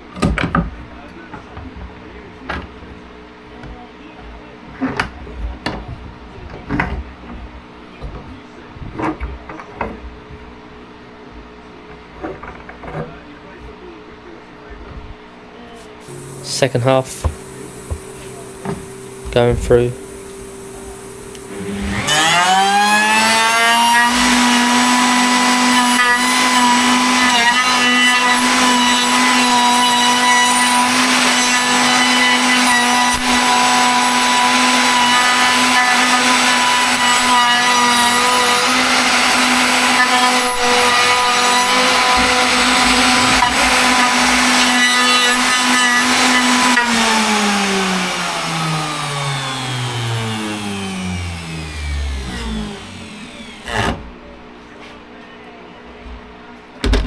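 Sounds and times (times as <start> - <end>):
power tool whining cutting wood: 16.0 - 54.2.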